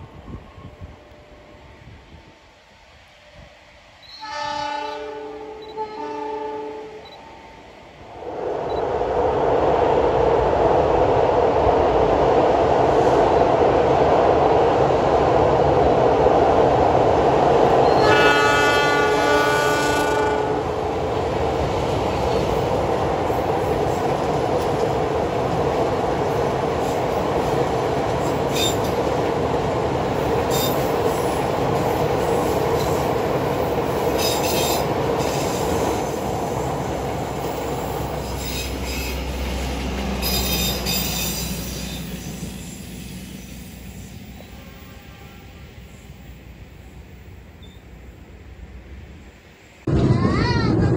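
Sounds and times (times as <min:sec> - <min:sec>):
train wheels on rails: 0:00.0 - 0:50.9
locomotive horn: 0:04.0 - 0:07.4, 0:17.8 - 0:20.8, 0:44.4 - 0:45.8.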